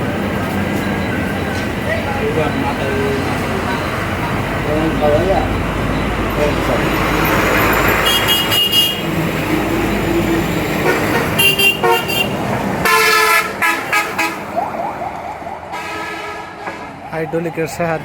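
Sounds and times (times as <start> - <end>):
steady background noise: 0.0 - 18.0
vehicle horns honking: 8.0 - 9.2, 10.8 - 14.7, 15.7 - 16.9.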